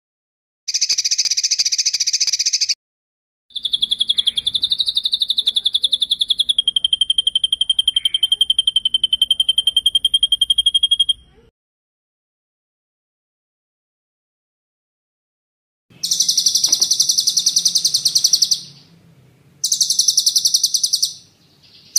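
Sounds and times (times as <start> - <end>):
songbird rapid trill: 0.7 - 2.8, 3.5 - 11.4, 15.9 - 19.0, 19.6 - 21.9.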